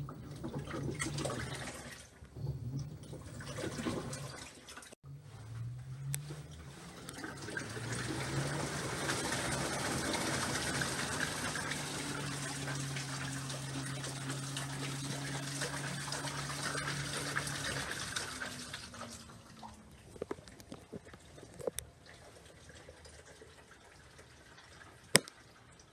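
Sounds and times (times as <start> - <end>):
water rushing into washing machine: 0.0 - 25.9
low hum: 2.3 - 4.3, 5.0 - 20.2.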